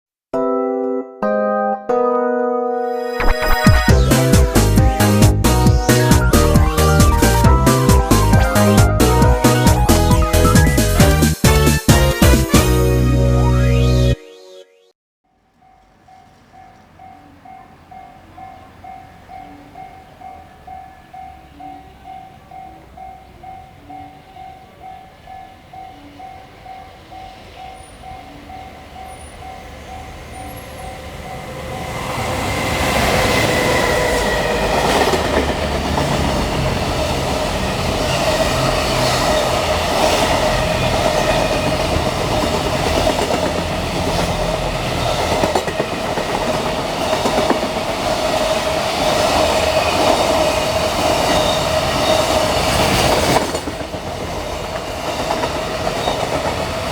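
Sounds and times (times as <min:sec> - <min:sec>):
freight train rumble and rush: 0:03.9 - 0:12.7, 0:16.0 - 0:56.9
warning bell ringing: 0:15.3 - 0:36.1
train wheels clicking over rail joints: 0:32.5 - 0:56.9.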